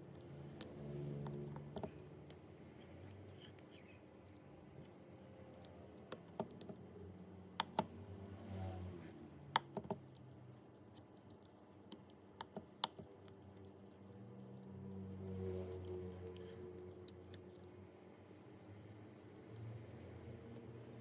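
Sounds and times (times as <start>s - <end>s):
small tools clicking and tapping: 0.1s - 2.4s.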